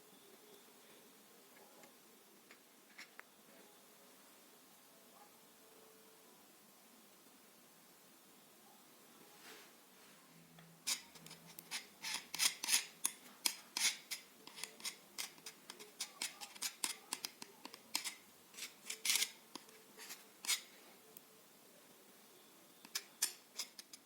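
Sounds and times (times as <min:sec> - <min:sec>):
hand tool scraping and clicking: 0:10.9 - 0:20.7, 0:22.8 - 0:24.0.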